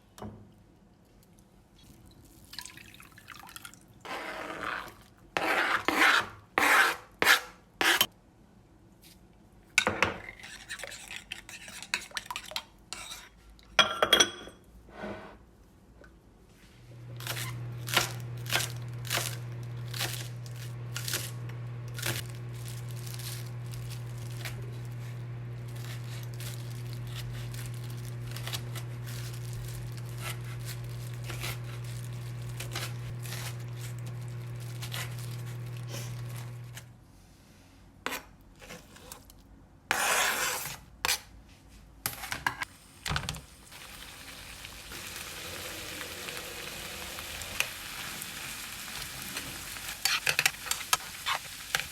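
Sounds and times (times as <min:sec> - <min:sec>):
dishes and utensils clinking: 0:13.8 - 0:14.7
kitchen appliance hum: 0:16.6 - 0:37.0, 0:42.1 - 0:51.9
food sizzling in a pan: 0:43.7 - 0:51.9.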